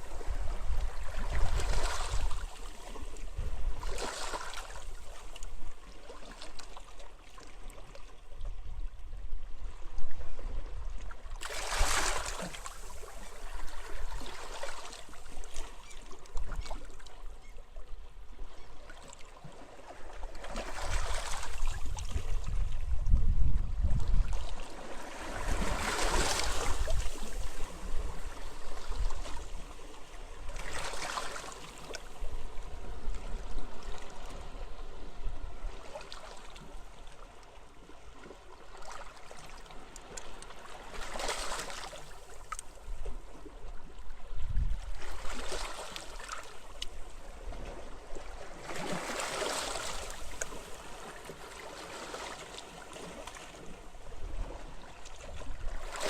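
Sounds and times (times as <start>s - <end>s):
low wind rumble: 21.8s - 24.3s.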